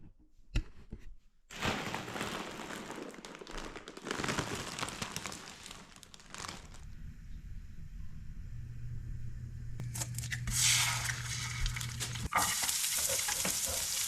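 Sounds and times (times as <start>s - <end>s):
crinkling rustling crackles: 1.5s - 7.0s, 11.0s - 14.0s.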